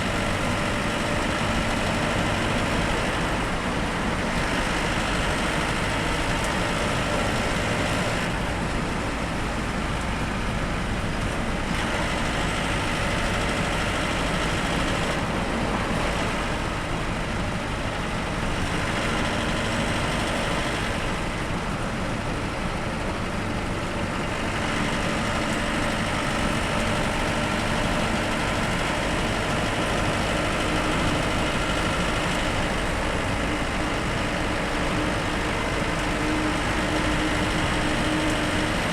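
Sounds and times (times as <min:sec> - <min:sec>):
bus engine and road noise: 0:00.0 - 0:38.9.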